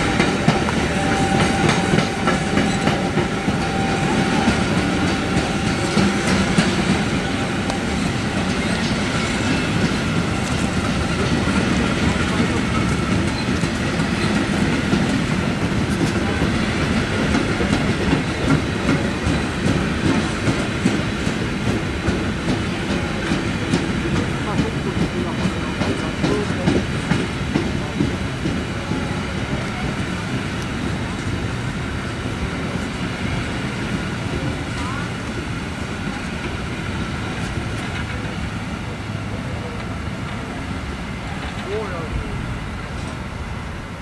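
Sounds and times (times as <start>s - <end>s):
wheels clacking over rail joints: 0.0s - 43.5s
train wheels rumbling on rail: 0.0s - 44.0s.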